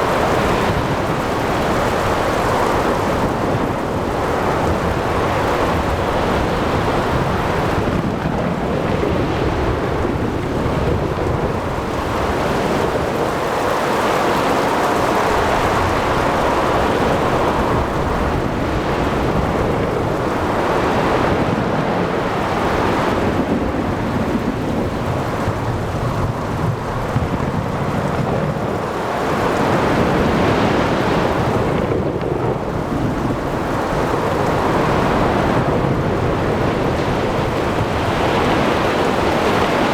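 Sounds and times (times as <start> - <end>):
rain: 0.0 - 39.9
waves breaking: 0.0 - 39.9
wind: 0.0 - 39.9.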